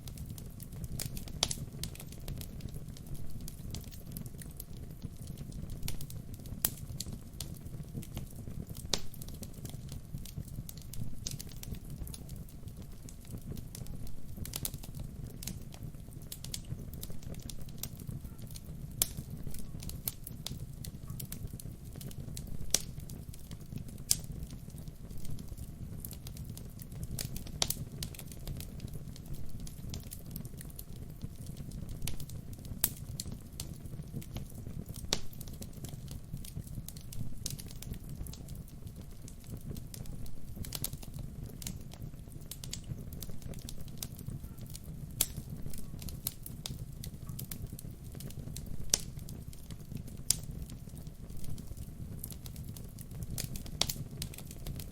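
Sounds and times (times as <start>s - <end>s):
low rumble of flames: 0.0s - 54.9s
wood fire crackling and popping: 0.0s - 54.9s.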